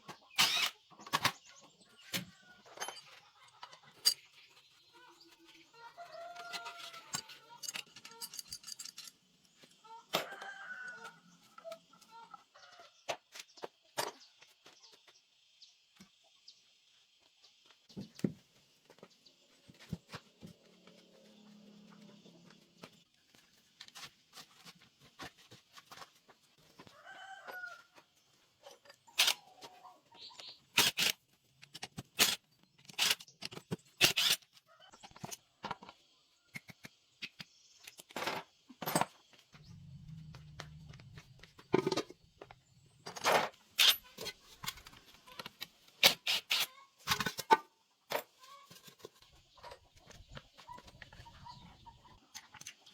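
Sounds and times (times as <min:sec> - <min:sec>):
chickens clucking: 0:00.0 - 0:08.2, 0:26.8 - 0:30.7, 0:46.7 - 0:47.0, 0:47.6 - 0:52.9.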